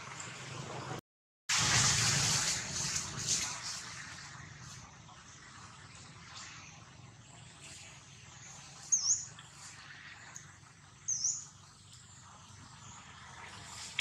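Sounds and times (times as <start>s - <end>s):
bird chirping: 8.4s - 9.7s, 11.0s - 13.0s.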